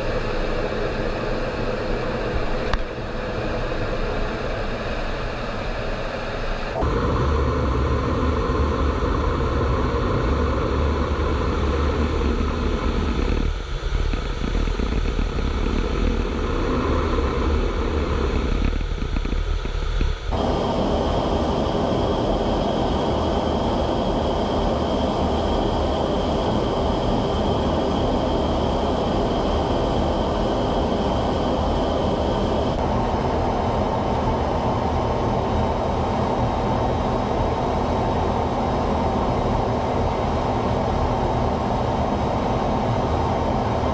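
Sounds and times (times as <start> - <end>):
high whine: 0.0 - 38.5
engine rumble: 6.6 - 33.5.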